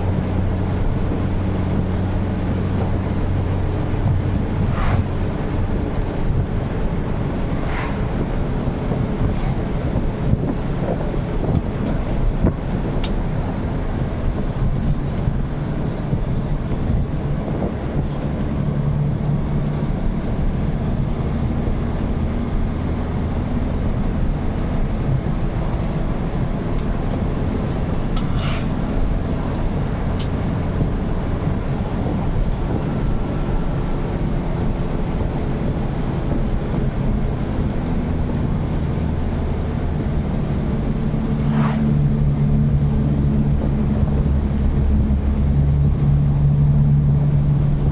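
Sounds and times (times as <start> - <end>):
road noise: 0.0 - 47.9.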